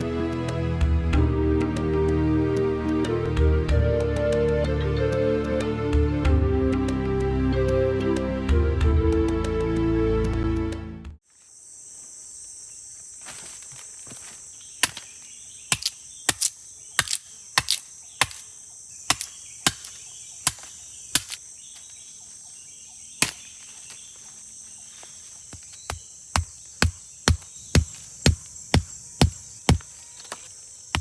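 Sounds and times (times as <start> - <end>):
background music: 0.0 - 11.2
insects chirping: 11.2 - 31.0.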